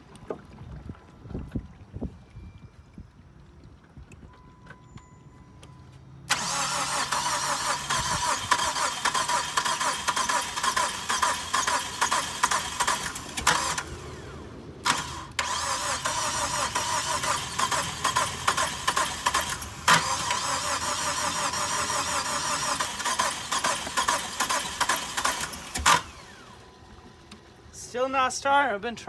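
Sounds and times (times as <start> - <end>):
starter cranking engine: 6.3 - 26.7.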